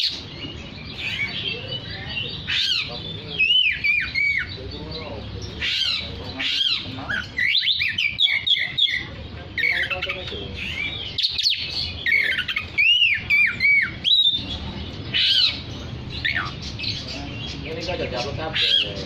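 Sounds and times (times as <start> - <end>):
bird singing whistled notes: 5.7 - 15.6.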